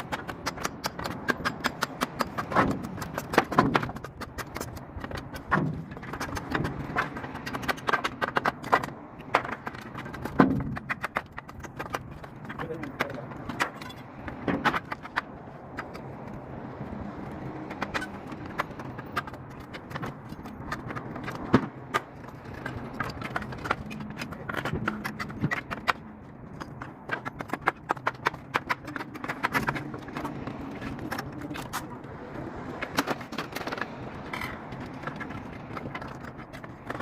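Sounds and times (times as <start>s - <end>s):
knocks on wooden pallets: 0.1s - 13.8s.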